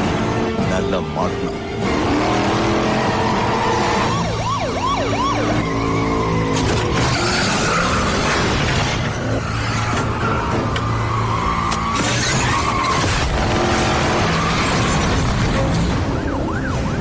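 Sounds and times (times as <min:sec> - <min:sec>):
car engines revving: 0:00.0 - 0:17.0
rising and falling wails: 0:01.8 - 0:15.3
tyre squeal: 0:09.2 - 0:13.2.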